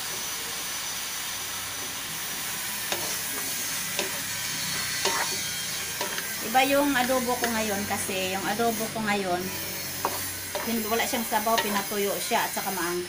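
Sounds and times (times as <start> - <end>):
chicken sizzling in a wok: 0.0 - 13.0
wooden spatula stirring: 2.9 - 7.6, 9.6 - 11.9.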